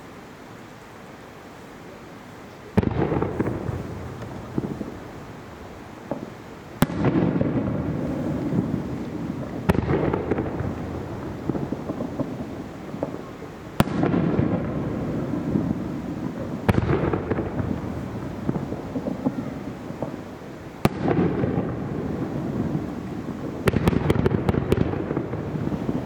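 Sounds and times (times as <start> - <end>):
firework shells bursting: 2.8 - 26.0.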